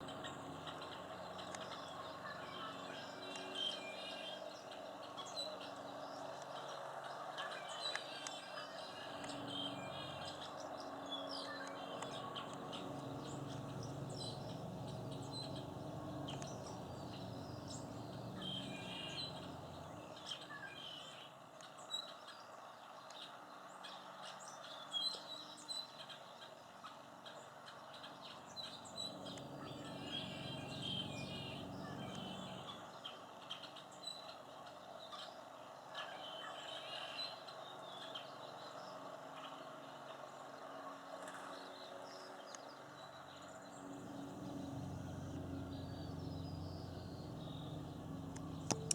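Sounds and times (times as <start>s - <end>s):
small songbirds chirping: 9.1s - 20.4s, 28.3s - 32.8s, 42.6s - 48.9s
low background rumble: 11.8s - 20.2s, 28.8s - 32.8s, 43.7s - 48.9s.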